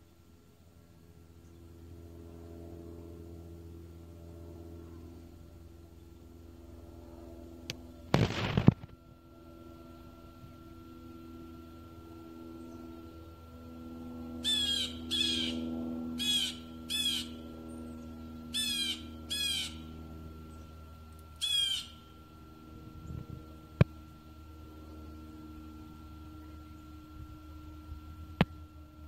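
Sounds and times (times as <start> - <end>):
steady low hum: 0.0 - 29.0
bird harsh calls: 14.4 - 19.9, 21.4 - 22.1.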